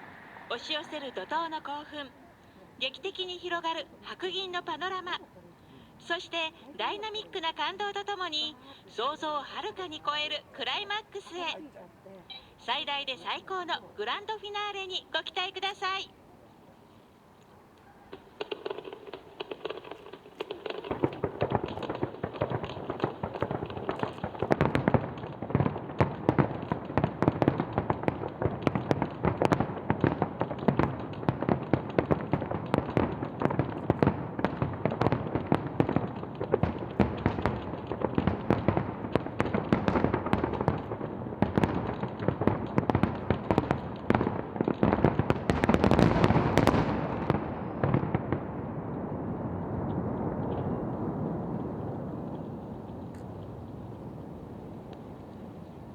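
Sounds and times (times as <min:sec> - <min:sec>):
fireworks bangs and crackles: 0:00.0 - 0:05.2, 0:18.1 - 0:55.9.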